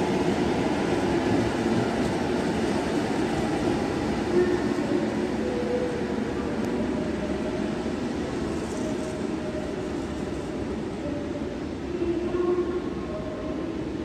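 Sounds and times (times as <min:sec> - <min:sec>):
train rumbling on tracks: 0:00.0 - 0:14.0.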